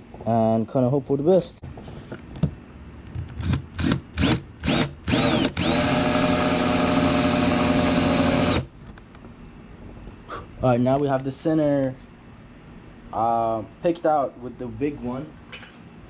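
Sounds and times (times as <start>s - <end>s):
cordless power drill: 3.4s - 8.7s.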